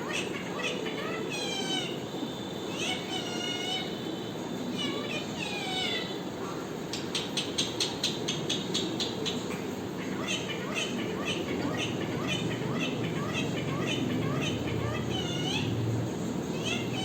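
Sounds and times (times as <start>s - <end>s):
parrot calling: 0.0s - 17.0s
parrot sharp chirps: 10.0s - 15.7s.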